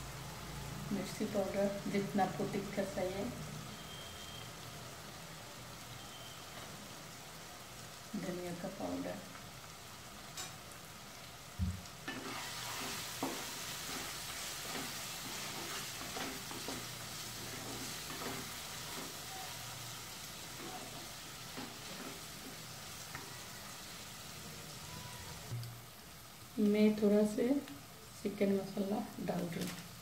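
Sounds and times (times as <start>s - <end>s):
spices sizzling in oil: 0.0s - 30.0s
thump: 11.6s - 11.8s
spatula stirring and scraping: 12.1s - 23.3s.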